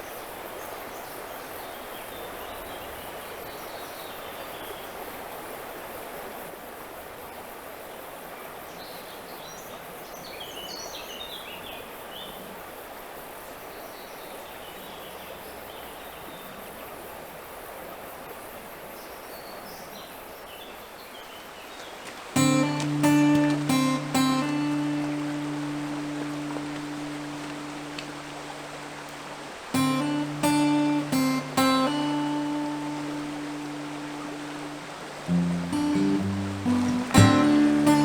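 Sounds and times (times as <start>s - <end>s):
river water rushing: 22.1s - 38.0s.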